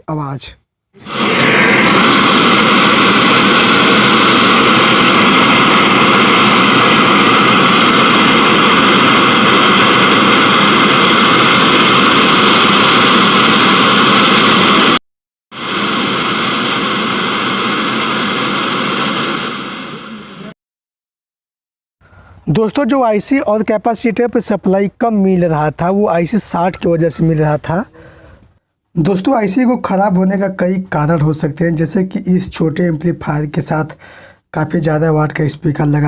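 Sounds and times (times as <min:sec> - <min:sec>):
radio static hiss: 0:01.0 - 0:15.0, 0:15.6 - 0:20.5.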